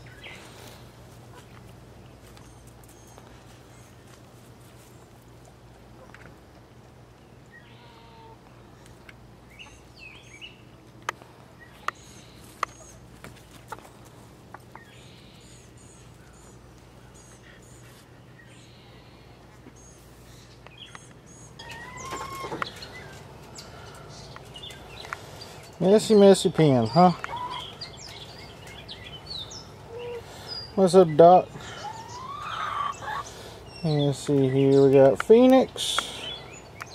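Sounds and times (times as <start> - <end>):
chickens clucking: 11.7 - 15.0, 21.6 - 36.4.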